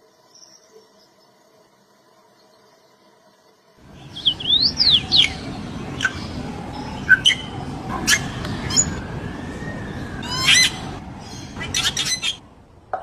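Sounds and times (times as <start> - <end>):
steady background noise: 0.0 - 13.0
birds calling: 3.8 - 13.0.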